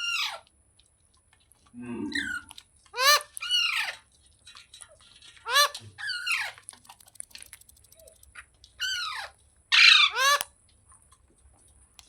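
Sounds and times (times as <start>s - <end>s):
parakeet shrill calls: 3.0s - 4.0s, 8.8s - 10.4s.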